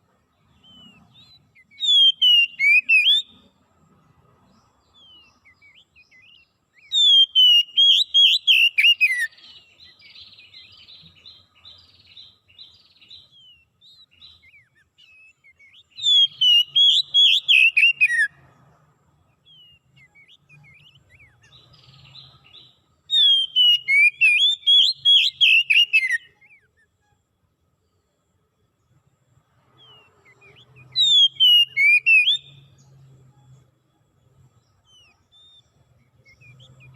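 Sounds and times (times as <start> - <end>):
soft bird twittering: 0.0 - 36.9
songbird whistled phrases: 0.6 - 3.4, 5.0 - 18.3, 19.5 - 26.9, 29.8 - 32.6.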